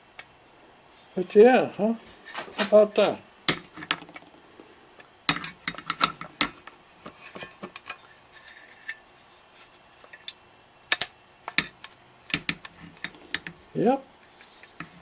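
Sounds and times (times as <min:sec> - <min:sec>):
plastic and metal parts clacking: 0:05.3 - 0:09.0, 0:10.1 - 0:13.6.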